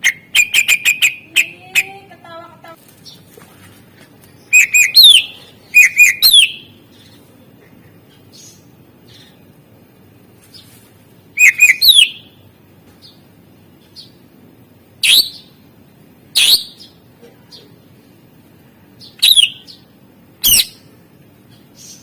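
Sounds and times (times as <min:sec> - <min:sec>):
sharp bird call: 0:00.0 - 0:01.9, 0:04.5 - 0:06.7, 0:11.4 - 0:12.3, 0:19.2 - 0:19.7
bird singing chirps and whistles: 0:04.4 - 0:06.8, 0:11.4 - 0:12.3, 0:15.0 - 0:15.5, 0:16.4 - 0:16.9, 0:19.0 - 0:19.8, 0:20.4 - 0:20.8.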